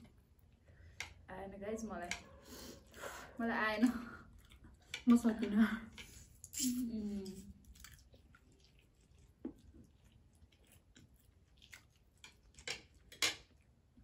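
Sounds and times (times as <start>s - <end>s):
people chewing noodles: 2.3s - 14.0s.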